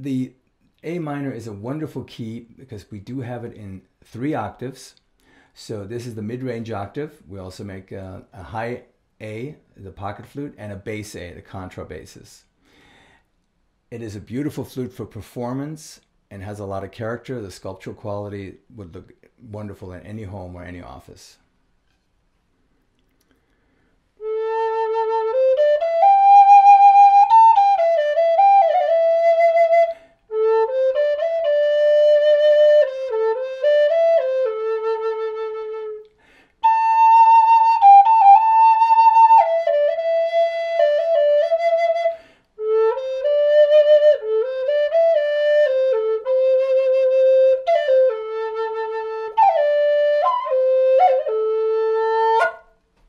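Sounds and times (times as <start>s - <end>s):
player breathing: 5.2s - 5.6s, 12.6s - 13.4s, 22.6s - 24.1s, 36.1s - 36.6s, 42.1s - 42.6s
flute playing slow melody: 24.2s - 52.7s.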